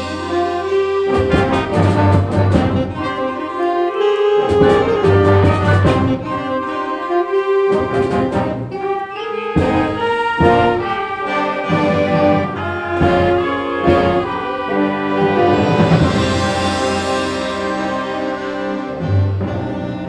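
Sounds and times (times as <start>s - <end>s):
concert band playing: 0.0s - 20.0s.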